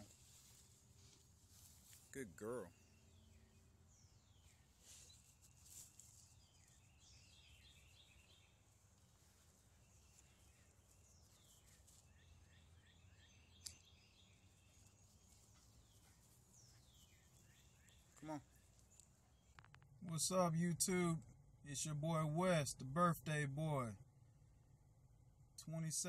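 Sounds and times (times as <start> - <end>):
faint birdsong chirps and trills: 0.0 - 26.0.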